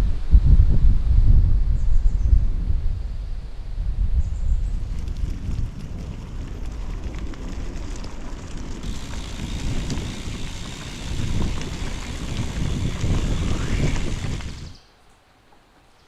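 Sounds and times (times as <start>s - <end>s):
wind buffeting microphone: 0.0s - 14.8s
steady hiss: 8.8s - 15.3s.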